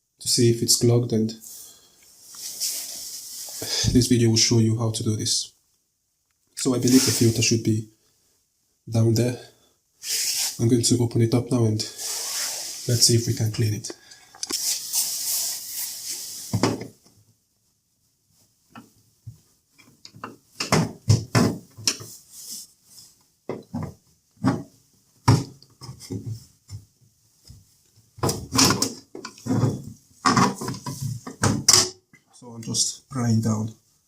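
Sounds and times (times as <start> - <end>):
steady hiss: 0.2 - 5.4, 6.6 - 10.9, 11.5 - 17.0.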